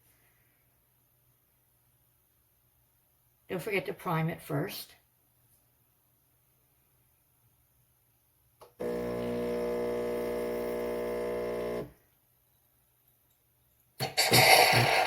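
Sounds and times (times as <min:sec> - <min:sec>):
espresso machine pump buzzing: 0:08.7 - 0:12.0.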